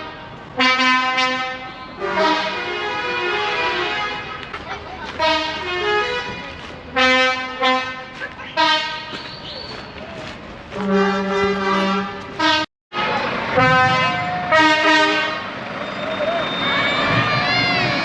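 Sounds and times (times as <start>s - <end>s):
lorry air horn blasts: 0.6s - 4.2s, 10.8s - 15.5s.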